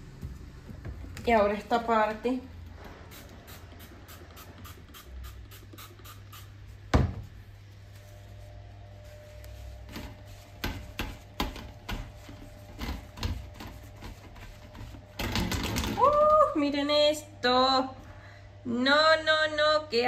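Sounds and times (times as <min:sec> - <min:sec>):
paper towel wiping fan guard: 0:02.8 - 0:15.2.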